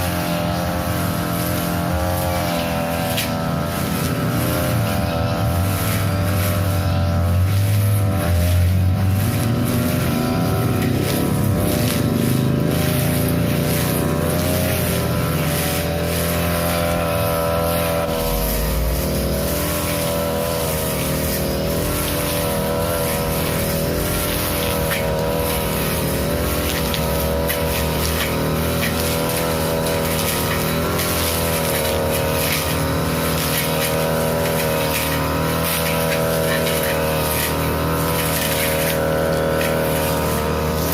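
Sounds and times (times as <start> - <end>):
grass cutter engine running: 0.0 - 40.9.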